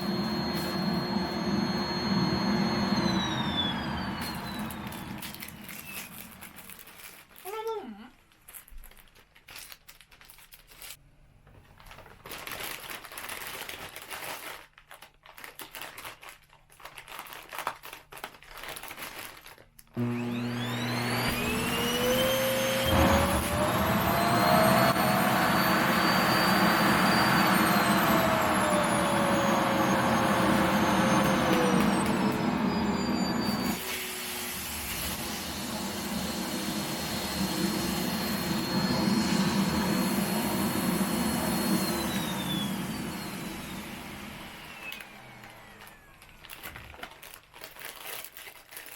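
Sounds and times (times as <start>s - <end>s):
vacuum cleaner motor whine: 0.0s - 6.8s, 20.0s - 47.1s
plastic bag crinkling: 4.8s - 20.0s, 45.6s - 48.9s.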